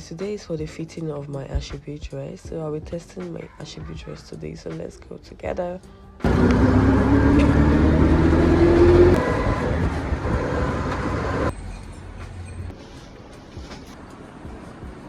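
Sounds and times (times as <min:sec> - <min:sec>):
vehicle engine accelerating: 0:06.2 - 0:13.2.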